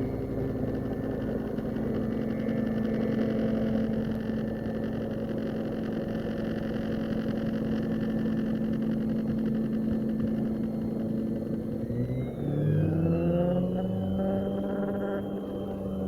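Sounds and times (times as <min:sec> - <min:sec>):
stepper motors buzzing whine: 0:00.0 - 0:16.0.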